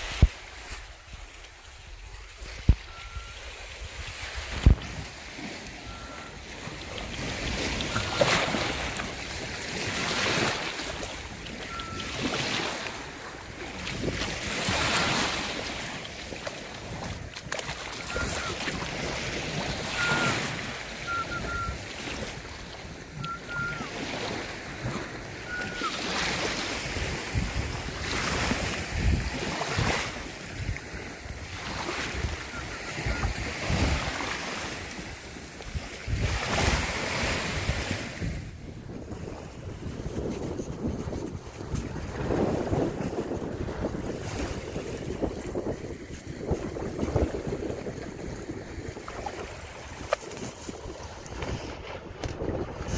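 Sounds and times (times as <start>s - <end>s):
sea waves washing in: 0.0s - 52.9s
wind buffeting microphone: 0.0s - 52.9s
short high chirps: 2.4s - 3.5s, 11.6s - 12.2s, 23.2s - 23.9s.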